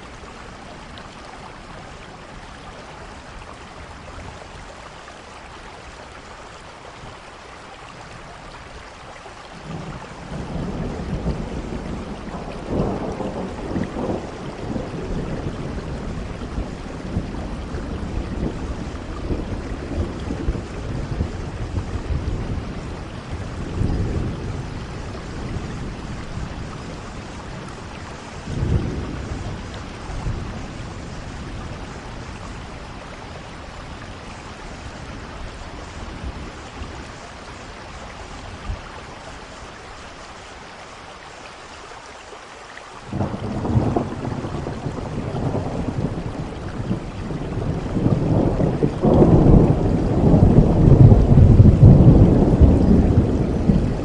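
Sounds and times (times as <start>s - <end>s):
steady rain: 0.0s - 54.0s
rolling thunder: 9.6s - 37.3s, 43.1s - 54.0s.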